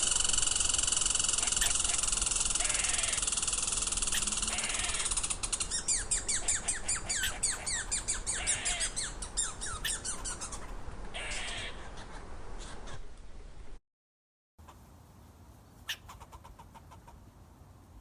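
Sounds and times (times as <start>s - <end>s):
bird chirping: 0.0s - 13.0s
steady background hiss: 0.0s - 13.8s, 14.6s - 18.0s.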